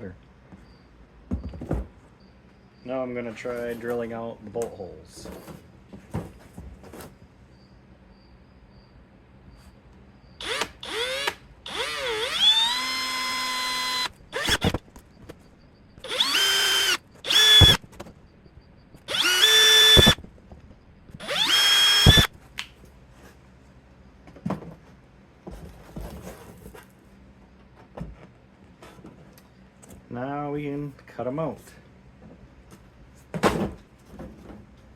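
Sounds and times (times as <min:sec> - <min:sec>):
electric drill whining: 0:10.4 - 0:14.8, 0:16.0 - 0:17.8, 0:19.0 - 0:20.2, 0:21.1 - 0:22.3.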